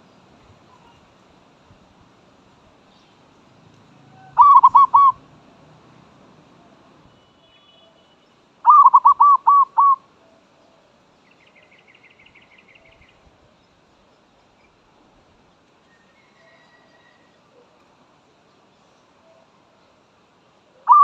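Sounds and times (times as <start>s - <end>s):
dove cooing: 4.2s - 5.3s, 8.7s - 10.0s, 20.8s - 21.0s.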